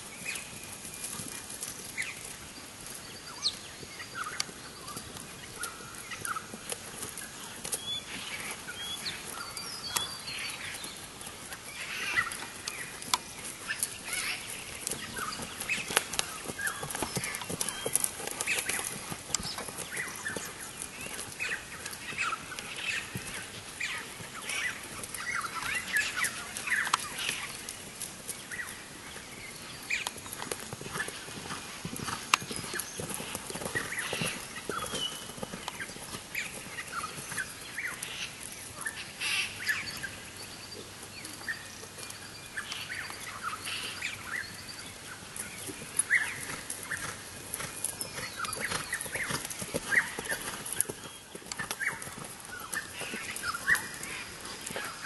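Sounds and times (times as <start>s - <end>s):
birds chirping: 0.1s - 55.0s.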